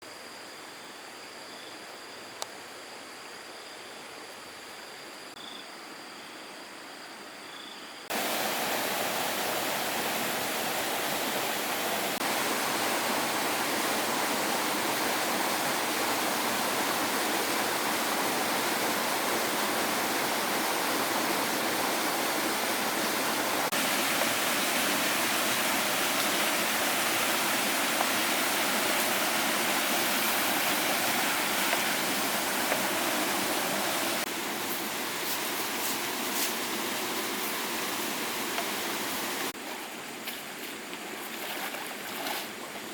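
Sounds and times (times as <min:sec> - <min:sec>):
faint hiss: 0:00.1 - 0:42.9
water rushing: 0:08.1 - 0:39.7.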